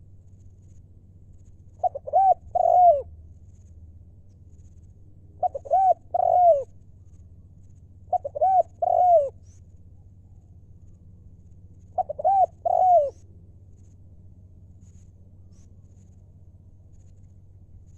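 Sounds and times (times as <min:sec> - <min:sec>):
dove cooing: 0:01.8 - 0:03.1, 0:05.4 - 0:06.8, 0:08.1 - 0:09.4, 0:11.8 - 0:13.2.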